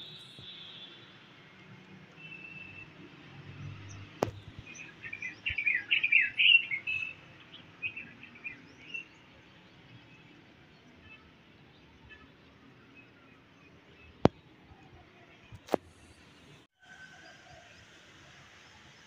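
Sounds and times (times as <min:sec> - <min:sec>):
birds chirping: 0:03.6 - 0:16.6.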